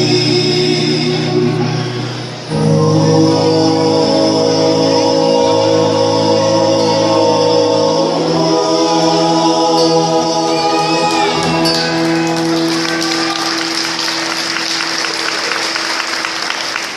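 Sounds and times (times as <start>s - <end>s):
vocal group singing chord: 0.0s - 16.3s
audience applause and cheering: 10.5s - 16.9s.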